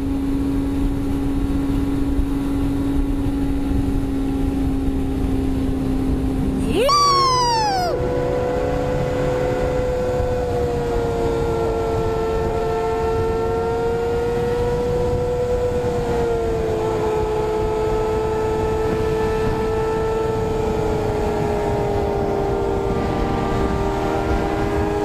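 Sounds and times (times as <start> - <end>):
wind noise: 9.0 - 25.0.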